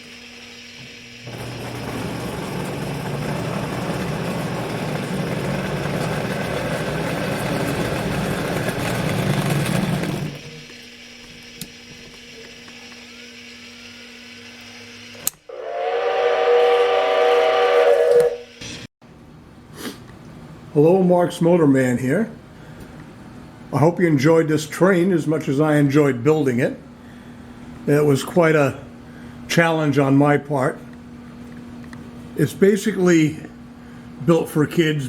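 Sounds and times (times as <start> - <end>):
toy locomotive whirring on track: 1.2 - 10.8.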